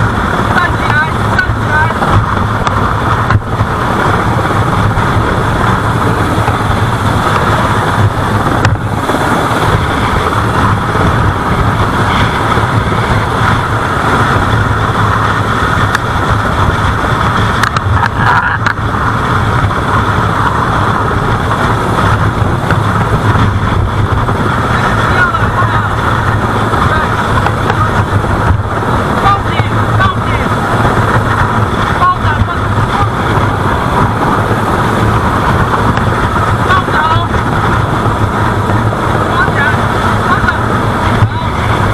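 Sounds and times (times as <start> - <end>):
boat engine running: 0.0 - 41.9.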